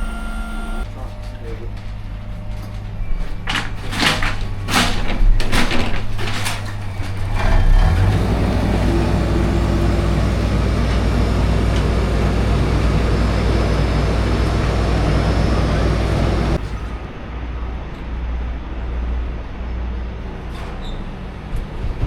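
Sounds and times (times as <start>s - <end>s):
diesel truck engine running: 0.0s - 4.7s, 6.6s - 18.4s.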